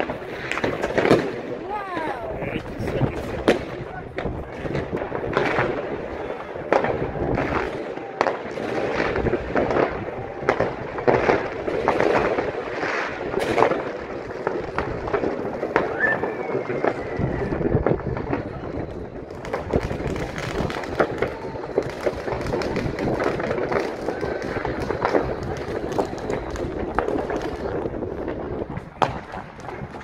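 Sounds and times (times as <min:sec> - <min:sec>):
fireworks bangs: 0:00.0 - 0:30.0
fireworks crackling: 0:00.0 - 0:30.0
faint firework whistle: 0:15.7 - 0:22.8, 0:23.7 - 0:27.7.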